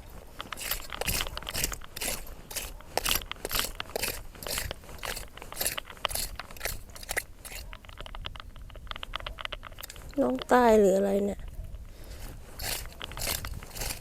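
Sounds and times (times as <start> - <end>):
rake scraping through sand: 0.0 - 7.8, 12.1 - 14.0.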